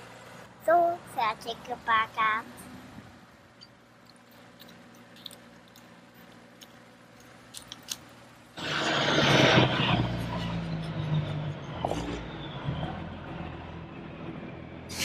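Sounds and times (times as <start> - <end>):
truck engine sound: 0.0 - 15.0
plastic toys clicking and knocking: 4.1 - 5.9
falling whine: 8.6 - 15.0.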